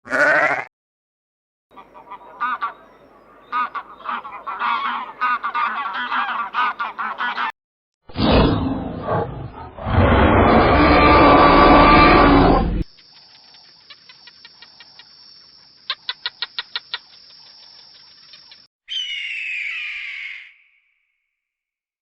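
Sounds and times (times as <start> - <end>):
animal harsh call: 9.8 - 12.8, 18.9 - 20.6.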